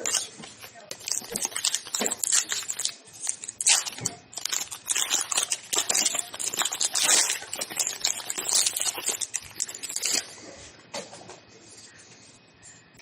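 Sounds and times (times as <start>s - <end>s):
cards rustling: 0.0s - 10.3s
foil wrapper crinkling and tearing: 0.0s - 10.3s.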